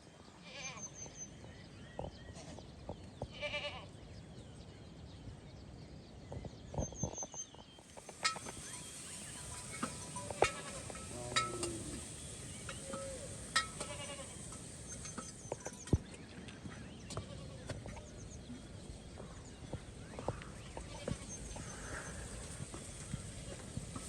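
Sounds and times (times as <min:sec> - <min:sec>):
livestock bleating: 0:03.3 - 0:03.9, 0:10.3 - 0:12.1, 0:13.1 - 0:14.5.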